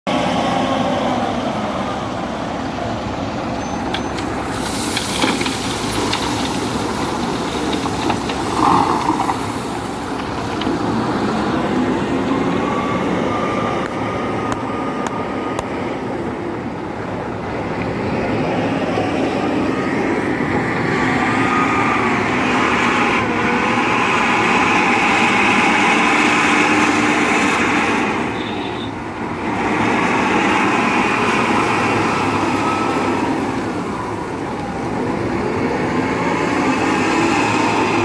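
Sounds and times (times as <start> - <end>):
truck diesel engine running: 0.1 - 38.0
air hiss: 4.3 - 7.0.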